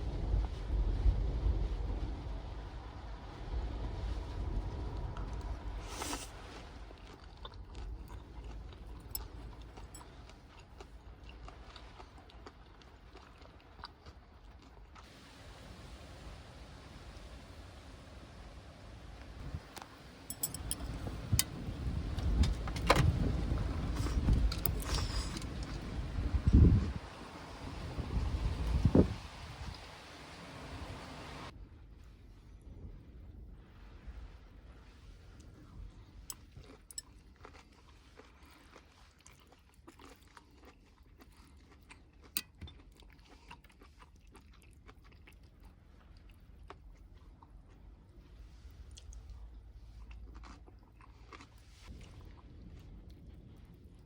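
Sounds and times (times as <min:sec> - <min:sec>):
strong wind buffeting microphone: 0:00.0 - 0:05.8, 0:20.3 - 0:31.5
low rumble: 0:00.0 - 0:10.0, 0:15.1 - 0:36.2, 0:51.8 - 0:54.0
crunching and chewing: 0:05.8 - 0:15.1, 0:23.2 - 0:25.9, 0:36.2 - 0:54.0
sharp clicks and rattles: 0:20.3 - 0:25.7.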